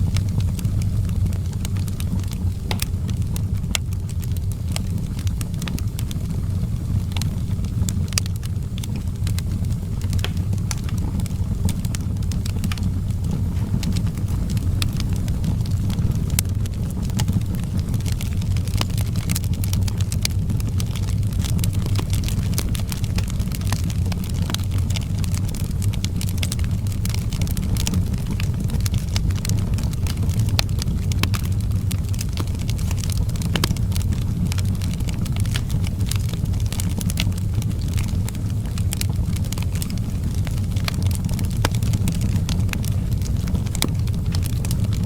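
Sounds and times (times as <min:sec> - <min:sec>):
fire crackling: 0:00.0 - 0:45.0.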